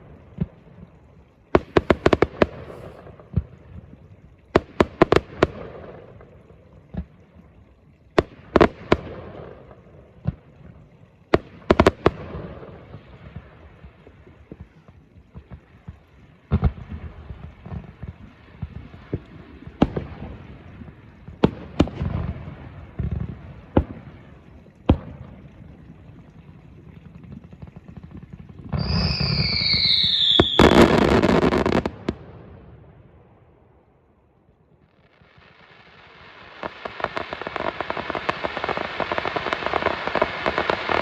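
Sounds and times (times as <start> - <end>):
fireworks banging: 1.6 - 3.0, 35.6 - 41.0
crackling and rumbling: 34.5 - 41.0.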